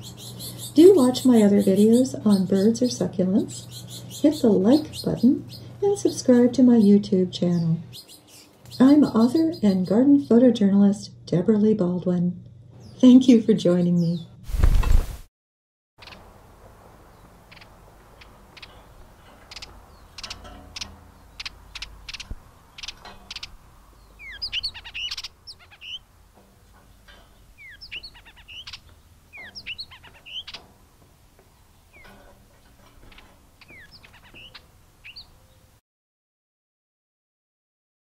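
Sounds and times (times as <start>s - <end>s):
bird ticking: 0.0s - 10.3s, 16.0s - 16.5s, 17.1s - 35.6s
songbirds chirping: 0.0s - 14.4s, 16.0s - 35.8s.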